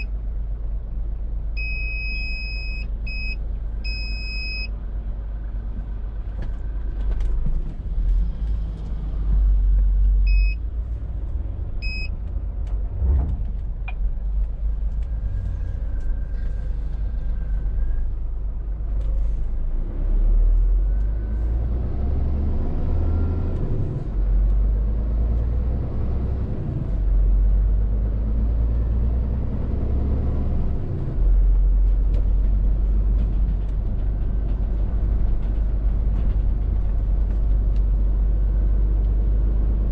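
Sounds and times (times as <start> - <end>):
lorry diesel engine rumble: 0.0 - 39.9
short electronic beeps: 1.6 - 4.7, 10.3 - 10.6, 11.8 - 12.2.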